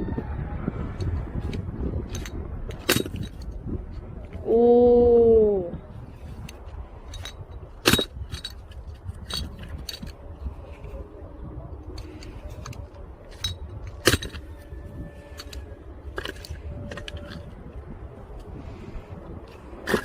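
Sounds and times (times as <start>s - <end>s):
wood knocking and clinking: 12.0s - 17.6s.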